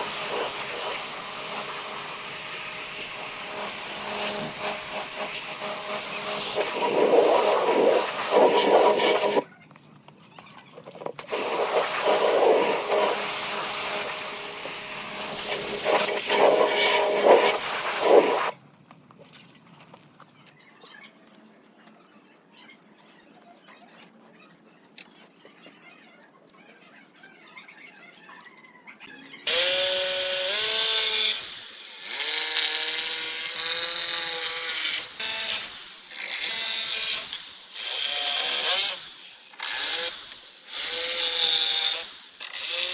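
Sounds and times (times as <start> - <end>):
power tools working wood: 0.0 - 9.4, 11.2 - 18.6, 29.5 - 42.9.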